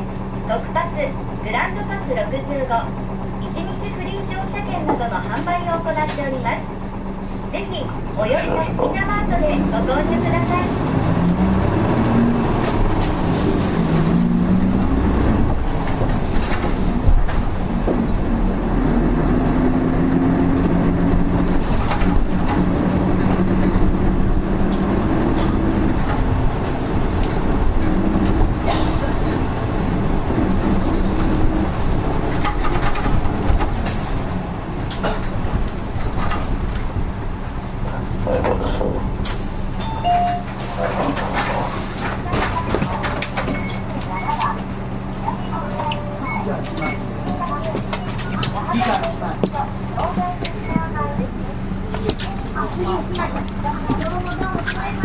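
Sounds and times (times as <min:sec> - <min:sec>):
bus diesel engine from inside: 0:00.0 - 0:55.0
rattles and knocks: 0:10.4 - 0:39.9, 0:40.5 - 0:44.7.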